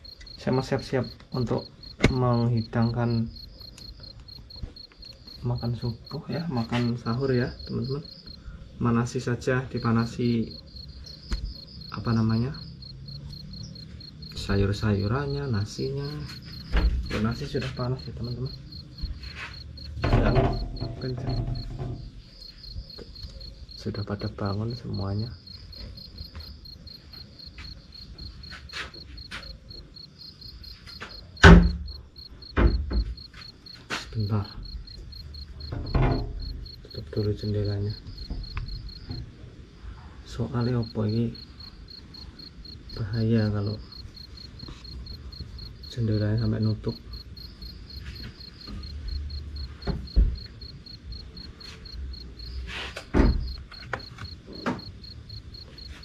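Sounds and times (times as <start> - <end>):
crickets chirping: 0.0 - 56.0
sharp knocks: 16.3 - 17.9, 19.8 - 22.1, 31.0 - 33.5, 35.6 - 36.7, 53.0 - 54.9
window banging in wind: 16.6 - 17.7, 19.9 - 22.2, 49.8 - 51.2, 53.0 - 54.9.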